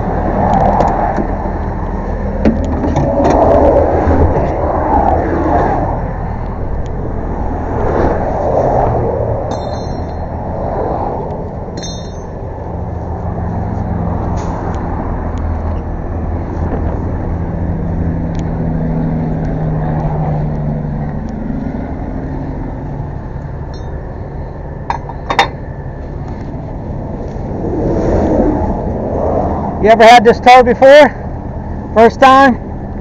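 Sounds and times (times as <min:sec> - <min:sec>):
truck engine droning: 0:00.0 - 0:33.0
sharp metal clank: 0:09.5 - 0:10.3, 0:11.8 - 0:12.4, 0:23.8 - 0:24.0
high metallic clinks: 0:09.5 - 0:10.4, 0:11.8 - 0:12.4, 0:23.7 - 0:24.0.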